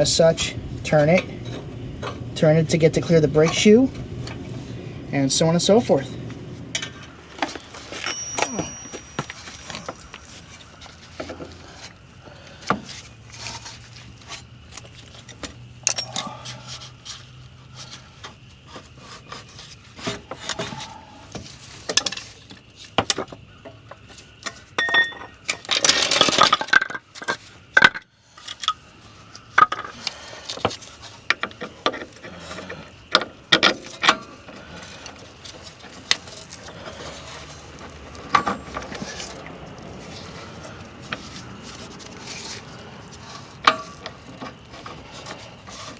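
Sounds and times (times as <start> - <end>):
metal tools clinking and tapping: 6.8 - 11.5, 15.2 - 16.4, 24.4 - 28.8, 38.2 - 39.4, 43.6 - 44.6.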